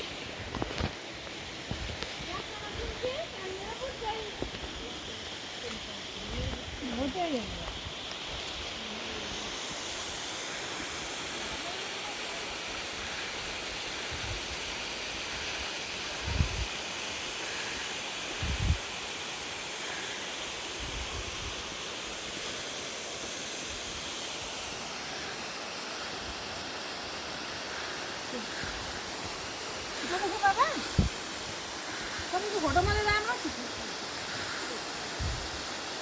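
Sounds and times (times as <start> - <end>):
waterfall rushing: 8.6 - 36.0.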